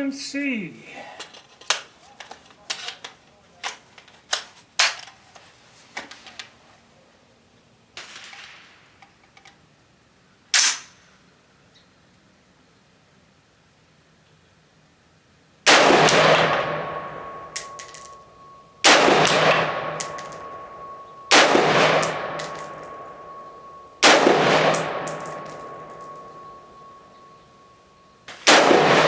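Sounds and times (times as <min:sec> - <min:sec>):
rifle shots echoing: 0:15.7 - 0:27.0, 0:28.3 - 0:29.0.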